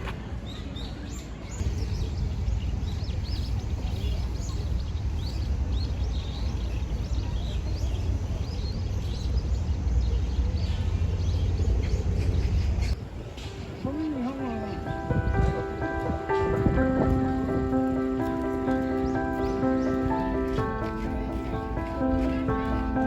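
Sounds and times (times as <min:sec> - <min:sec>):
steady low rumble: 0:10.8 - 0:23.0
small birds chirping: 0:13.7 - 0:23.0.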